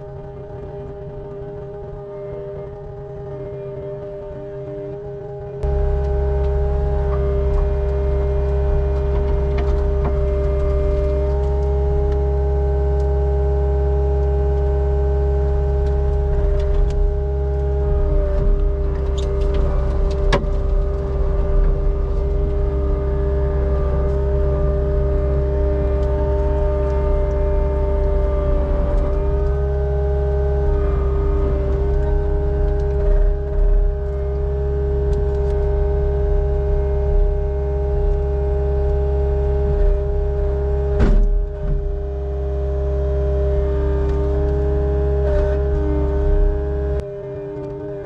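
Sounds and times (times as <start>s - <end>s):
diesel engine rumbling: 0.0s - 48.0s
machine whine: 0.0s - 48.0s.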